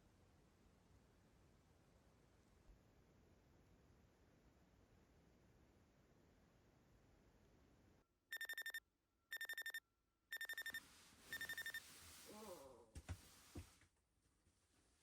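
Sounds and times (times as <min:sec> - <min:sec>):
electronic alarm beeping: 0:08.3 - 0:11.8.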